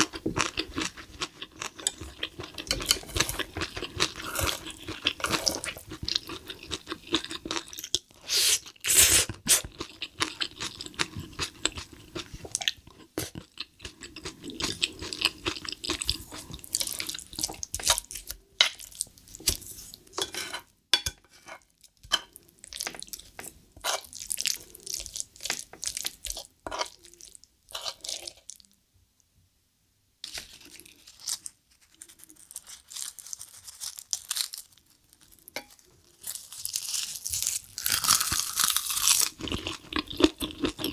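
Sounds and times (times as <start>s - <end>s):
wet chewing and mouth sounds: 0.0s - 20.1s, 35.4s - 40.9s
spoon squelching in sticky rice: 21.4s - 28.6s
crisp crunching of seaweed wrap: 30.3s - 39.4s.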